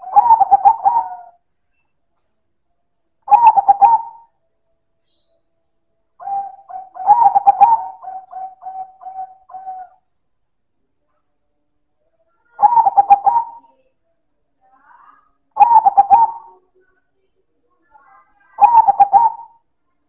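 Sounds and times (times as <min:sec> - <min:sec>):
dove singing: 0:00.0 - 0:01.4, 0:03.3 - 0:04.3, 0:06.2 - 0:10.0, 0:12.5 - 0:13.8, 0:15.6 - 0:16.6, 0:18.3 - 0:19.6.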